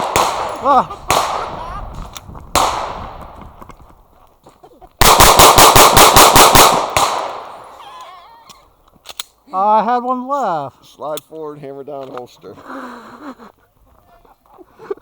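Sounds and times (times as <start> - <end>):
pistol shots echoing: 0.0 - 1.6, 2.6 - 3.3, 5.0 - 7.8.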